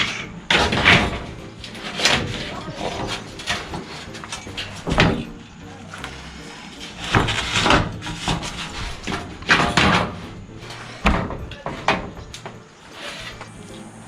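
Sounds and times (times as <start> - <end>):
knocks on corrugated tin wall: 7.0 - 10.4.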